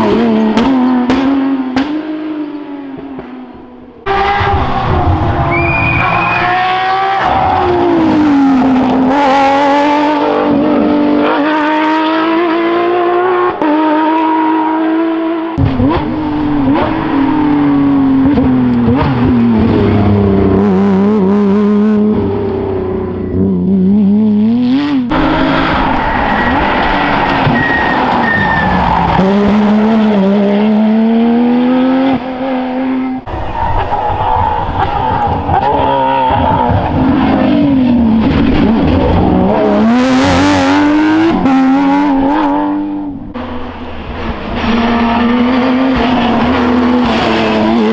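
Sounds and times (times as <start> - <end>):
rally car engines revving: 0.0 - 47.9
tyre squeal: 4.1 - 7.9, 25.6 - 29.3.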